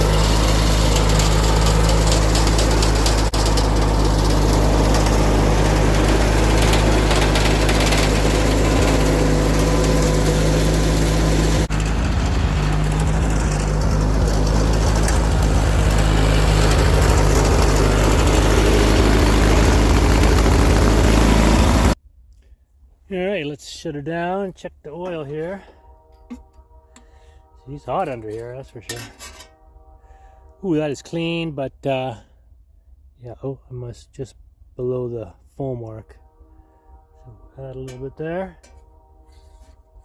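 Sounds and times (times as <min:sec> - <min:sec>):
garden tractor engine running: 0:00.0 - 0:22.0.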